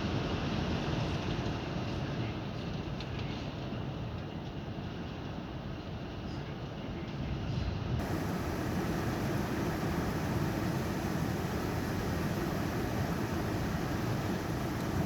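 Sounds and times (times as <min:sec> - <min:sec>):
steady rain hiss: 0:08.0 - 0:15.0.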